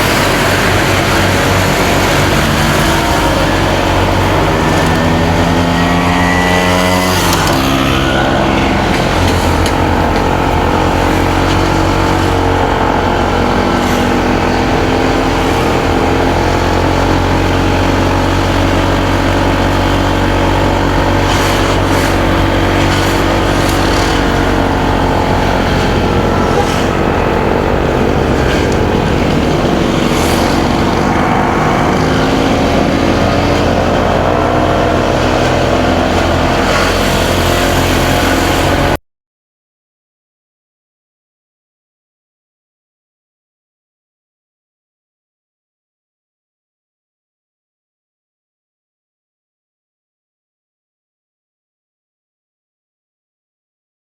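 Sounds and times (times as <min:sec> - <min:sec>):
motorcycle engine running: 0:00.0 - 0:39.0
road noise: 0:00.0 - 0:39.0.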